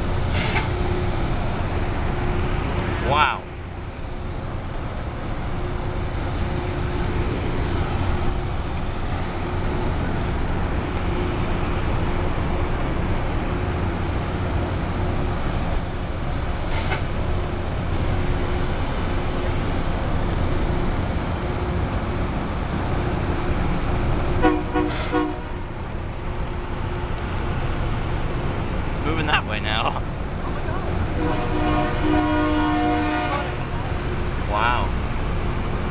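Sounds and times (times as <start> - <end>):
diesel machine rumble: 0.0 - 35.9
machine horn: 24.4 - 25.5, 31.2 - 33.6.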